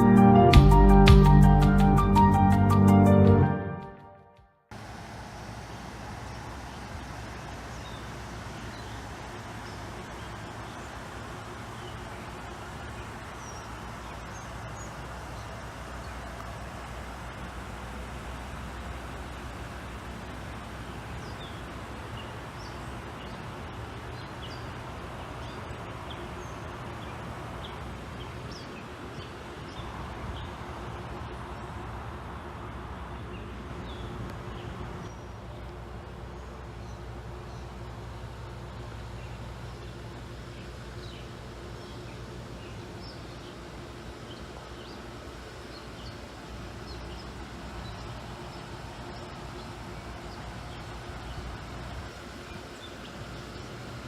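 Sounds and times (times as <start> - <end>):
steady low drone: 0.0 - 4.4
small birds chirping: 5.6 - 31.9, 32.6 - 54.0.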